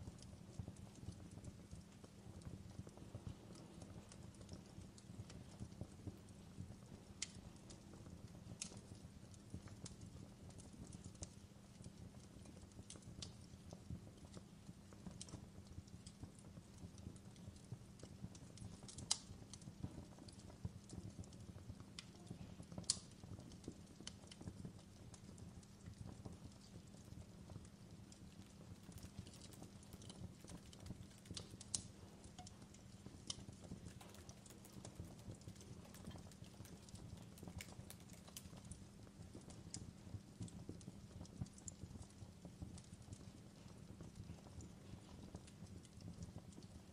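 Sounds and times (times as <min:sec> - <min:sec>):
fireplace crackling and popping: 0:00.0 - 0:46.9.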